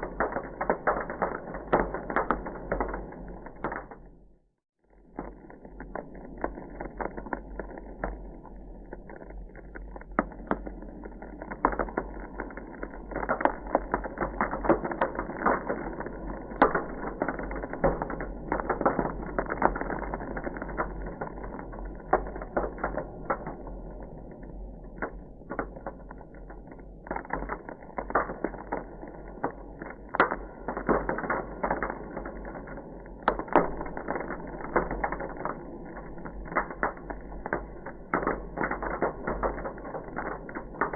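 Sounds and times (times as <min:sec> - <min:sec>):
ice crackling: 0:05.0 - 0:40.9.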